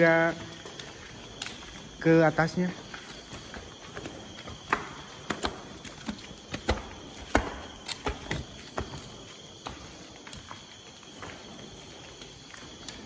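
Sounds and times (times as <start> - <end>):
cricket trill: 0.0 - 13.0
footsteps climbing stairs: 2.7 - 13.0.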